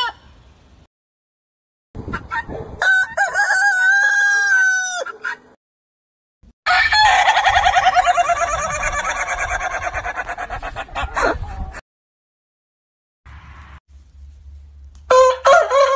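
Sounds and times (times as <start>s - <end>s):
chickens clucking rapidly: 2.0s - 3.2s, 7.3s - 11.8s
rooster crowing: 2.8s - 5.4s, 6.7s - 10.1s, 15.1s - 15.9s.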